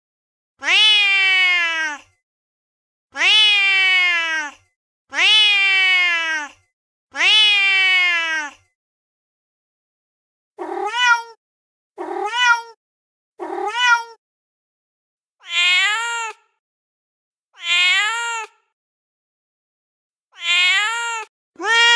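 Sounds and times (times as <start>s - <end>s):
angry cat meows: 0.6s - 2.1s, 3.2s - 8.7s, 10.6s - 11.4s, 12.0s - 12.8s, 13.4s - 14.2s, 15.4s - 16.6s, 17.6s - 18.6s, 20.3s - 21.9s
short cat meows: 10.6s - 11.4s, 12.0s - 12.8s, 13.4s - 14.2s, 15.4s - 16.5s, 17.6s - 18.6s, 20.3s - 21.9s.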